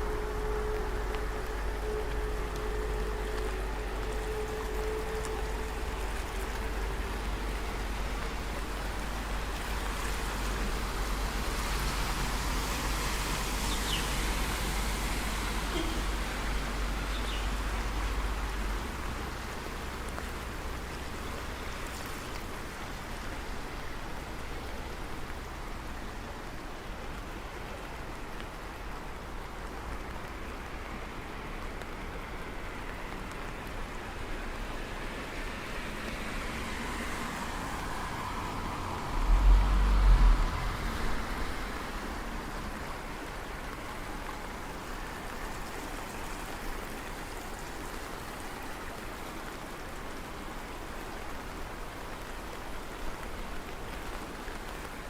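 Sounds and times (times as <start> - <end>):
steady rain falling: 0.0 - 55.0
low rumble: 38.5 - 42.7.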